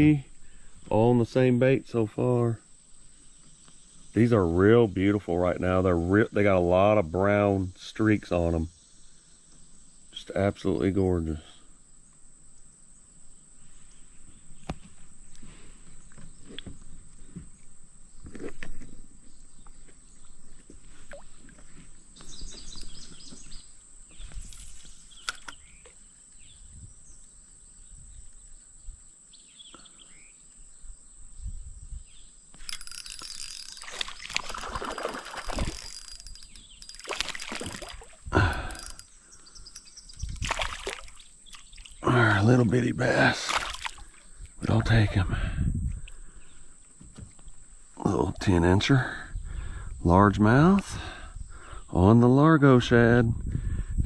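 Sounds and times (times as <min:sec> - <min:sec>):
crickets chirping: 0:00.0 - 0:54.0
water splashing: 0:32.6 - 0:39.0, 0:40.3 - 0:42.0, 0:43.3 - 0:44.2.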